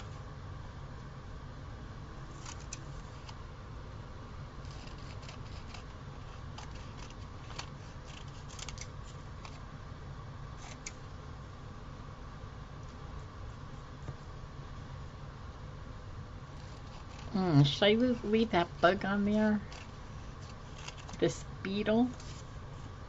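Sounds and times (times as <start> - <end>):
low room hum: 0.0 - 23.0
scissors snipping paper: 2.4 - 2.8, 4.6 - 9.6, 10.6 - 11.0, 16.6 - 17.4, 19.6 - 21.3.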